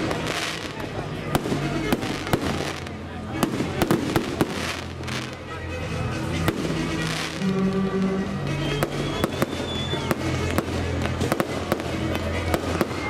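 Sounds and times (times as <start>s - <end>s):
fireworks bangs: 0.0s - 5.5s, 6.3s - 13.0s
fireworks hissing and crackling: 0.0s - 13.0s
loud music playing: 0.0s - 13.0s
thin high whistle: 7.4s - 10.3s.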